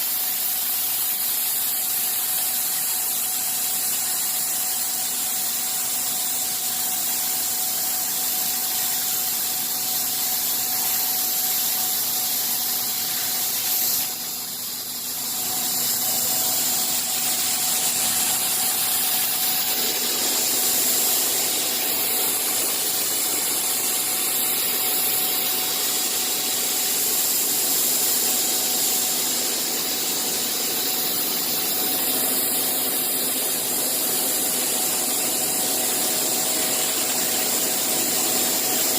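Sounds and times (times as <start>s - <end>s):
machine hiss: 0.0s - 38.9s.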